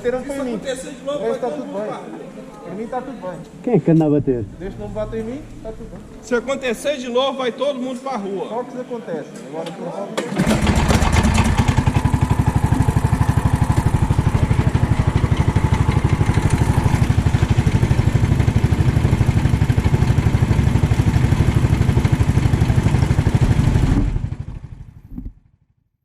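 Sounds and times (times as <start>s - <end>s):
kart engine idling: 10.3s - 25.1s.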